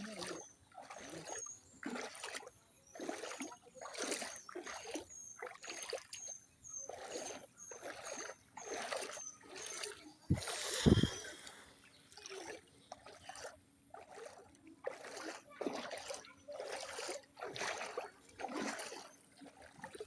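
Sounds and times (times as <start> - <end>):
water splashing and sloshing: 0.0 - 20.0
faint high chirp: 4.2 - 12.0.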